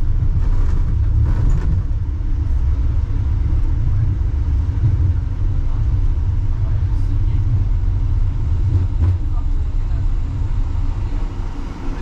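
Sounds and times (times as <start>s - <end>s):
suspension railway car rumbling: 0.0s - 12.0s.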